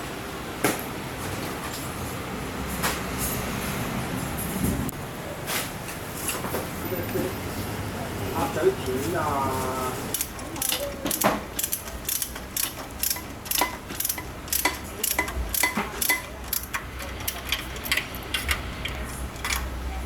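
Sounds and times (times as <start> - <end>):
hand tools clicking: 10.1 - 19.7.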